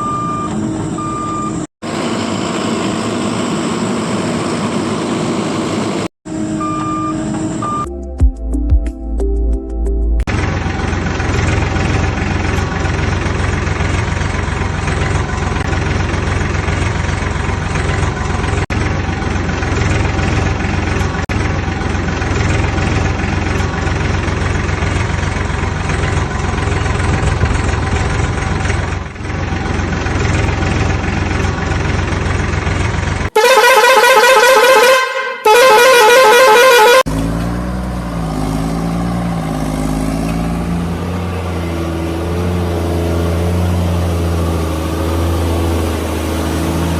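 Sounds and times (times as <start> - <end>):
warbling vehicle horn blasts: 33.3 - 37.1.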